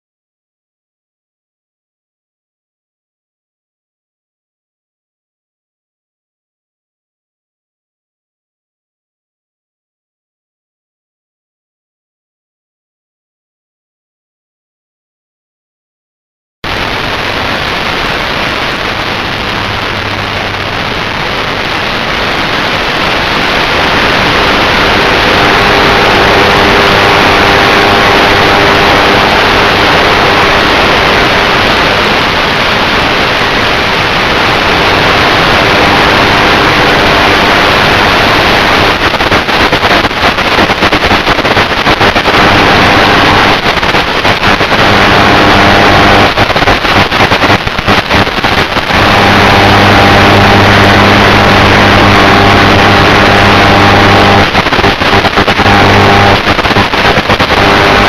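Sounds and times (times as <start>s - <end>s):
faint motor whine: 16.8s - 32.3s, 48.9s - 54.5s.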